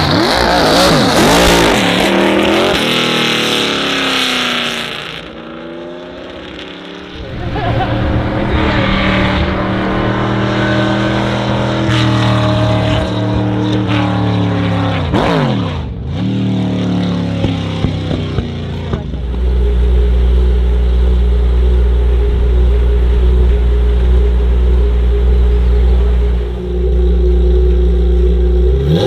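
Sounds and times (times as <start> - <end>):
race car engine revving: 7.1 - 29.0.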